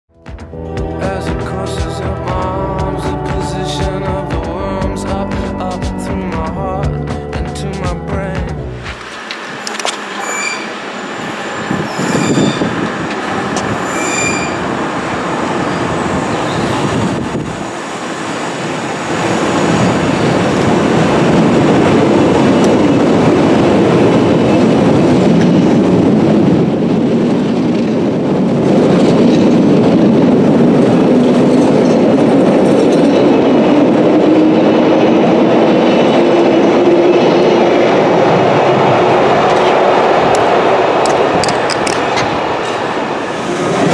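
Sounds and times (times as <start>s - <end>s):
rising whine: 8.4s - 25.0s
train wheels clattering over rails: 8.9s - 43.9s
high-pitched wheel squeals: 9.6s - 10.8s, 11.7s - 12.7s, 13.8s - 14.6s.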